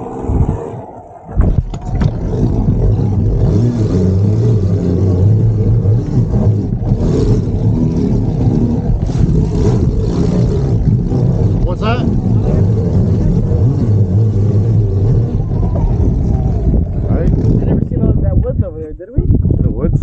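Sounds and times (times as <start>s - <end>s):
wind: 0.0s - 20.0s.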